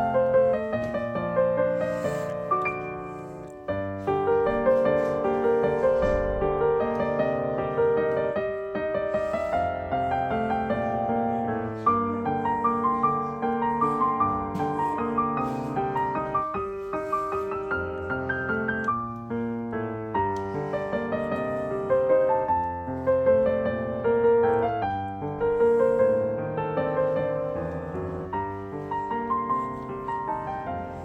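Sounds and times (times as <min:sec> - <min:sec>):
piano music: 0:00.0 - 0:31.0.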